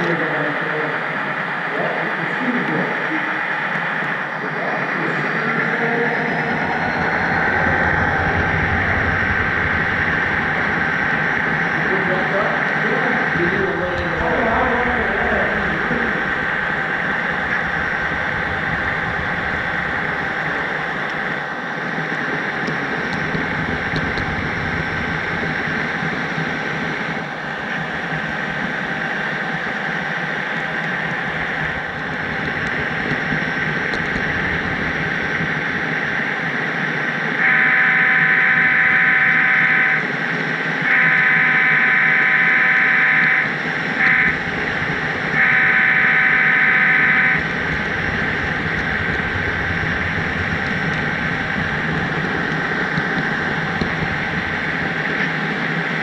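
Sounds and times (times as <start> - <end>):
model train running: 0.0 - 56.0
model train horn blasts: 37.4 - 40.1, 40.8 - 44.4, 45.4 - 47.5.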